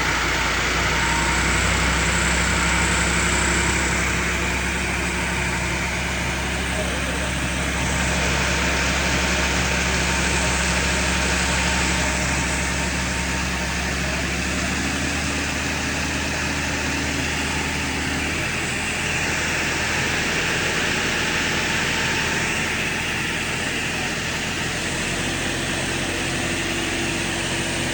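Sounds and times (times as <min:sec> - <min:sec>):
tractor engine running: 0:00.0 - 0:27.9.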